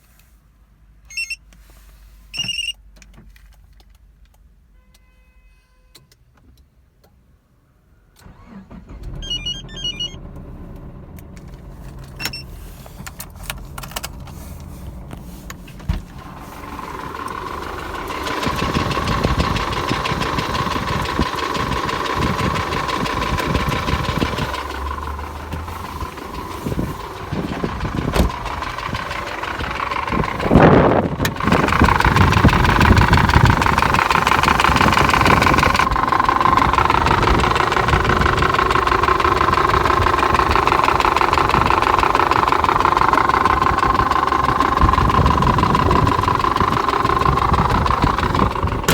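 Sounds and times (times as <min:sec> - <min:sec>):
dashboard warning chimes: 0:01.1 - 0:01.4, 0:02.4 - 0:02.8, 0:09.1 - 0:10.3, 0:12.2 - 0:12.6
car engine knocking: 0:11.2 - 0:48.9.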